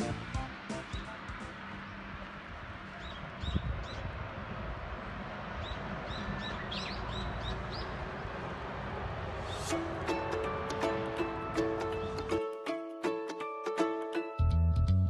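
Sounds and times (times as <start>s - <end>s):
small birds chirping: 0.0s - 4.2s, 5.6s - 8.5s.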